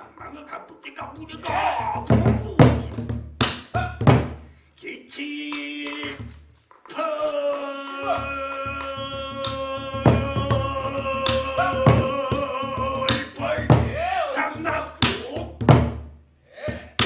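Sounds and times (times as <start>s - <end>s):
man singing: 0.0s - 3.1s, 4.8s - 15.7s
barrel drum strikes: 2.1s - 4.4s, 15.0s - 16.1s.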